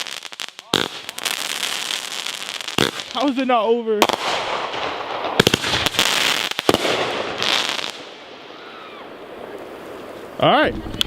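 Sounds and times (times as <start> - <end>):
fireworks bangs and crackling: 0.0 - 11.0
distant fireworks whistles: 4.2 - 10.2.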